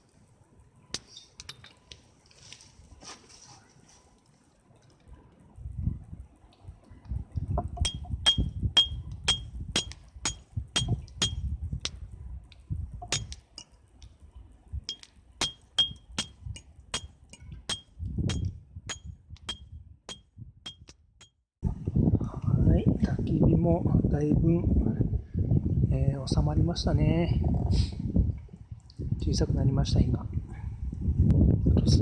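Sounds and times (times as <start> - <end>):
bright clinks of small hard object: 14.9 - 16.3.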